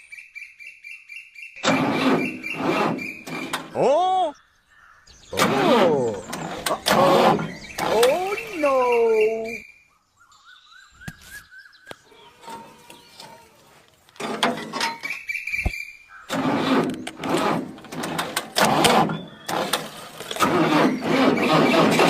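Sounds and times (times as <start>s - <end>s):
grinding and rattling with knocks: 1.6s - 3.8s, 5.3s - 8.7s, 12.0s - 15.3s, 16.3s - 22.0s
small motor whining: 1.6s - 3.8s, 5.3s - 8.6s, 16.3s - 22.0s.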